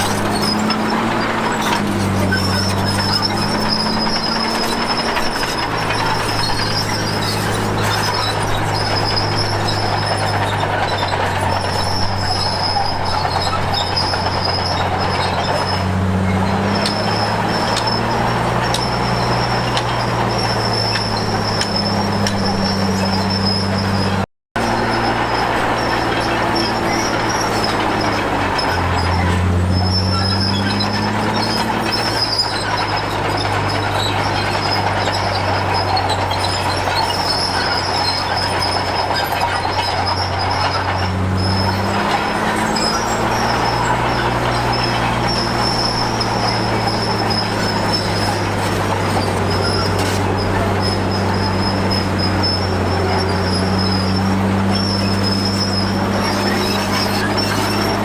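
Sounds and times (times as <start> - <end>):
bulldozer diesel engine under load: 0.0 - 58.0
steady high squeal: 0.0 - 58.0
steel tracks clattering: 0.0 - 58.0.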